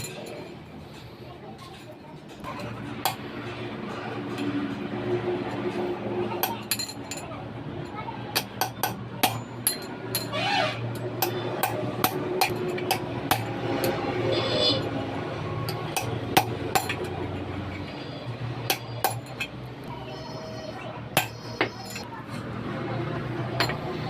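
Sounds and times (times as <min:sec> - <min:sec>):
hand tools tapping metal parts: 0:06.4 - 0:14.0, 0:15.6 - 0:18.0, 0:18.6 - 0:19.9, 0:21.1 - 0:22.1, 0:23.6 - 0:24.0.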